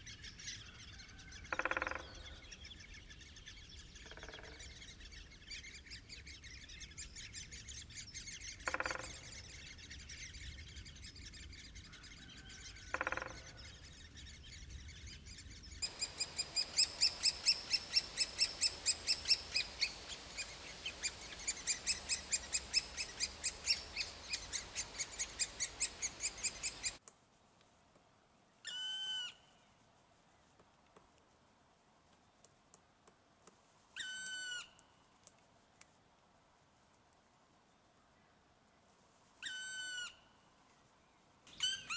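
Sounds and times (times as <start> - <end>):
woodpecker calls: 0.2 - 27.0.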